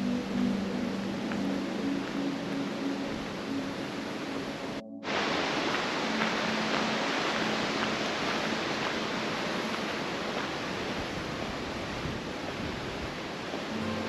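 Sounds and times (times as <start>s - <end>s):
flowing water rushing: 0.2s - 14.0s.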